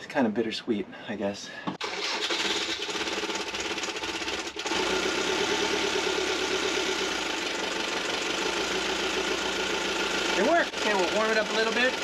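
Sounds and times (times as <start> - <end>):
engine starter cranking: 1.8 - 4.9
diesel engine idling: 2.8 - 12.0.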